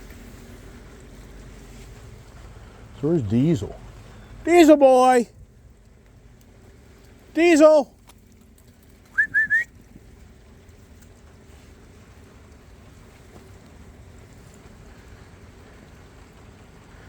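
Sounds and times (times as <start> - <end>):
faint steady rain: 0.0 - 17.0
person whistling: 9.2 - 9.7.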